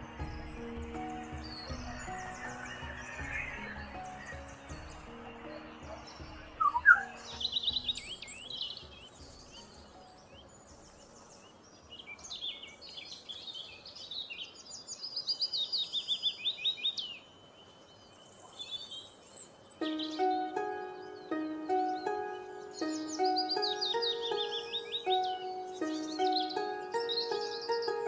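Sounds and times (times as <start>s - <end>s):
background music: 0.0s - 11.9s, 19.8s - 28.0s
songbird singing: 0.0s - 28.0s.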